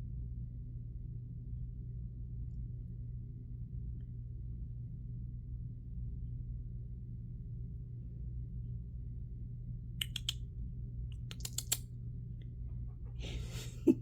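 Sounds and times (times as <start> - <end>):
light clicks and taps: 10.0 - 10.4, 11.2 - 11.8.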